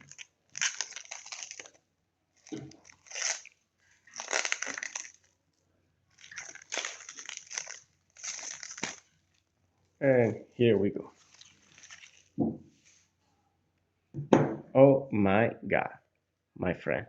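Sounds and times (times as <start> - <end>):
packaging crinkling: 0.0 - 5.4, 6.1 - 9.6, 11.2 - 12.4.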